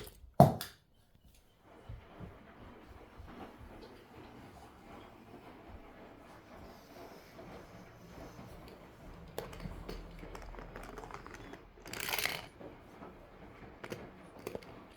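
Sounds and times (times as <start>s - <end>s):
plastic toy cars clicking: 9.2s - 14.9s.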